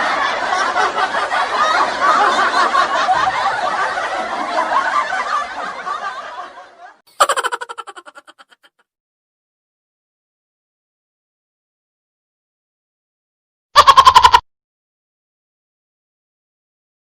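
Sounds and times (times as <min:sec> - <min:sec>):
snickering and chuckling laughter: 0:00.0 - 0:08.8.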